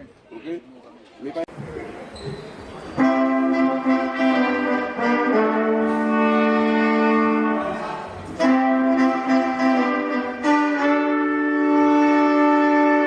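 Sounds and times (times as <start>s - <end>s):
horn section chords: 3.0s - 13.0s.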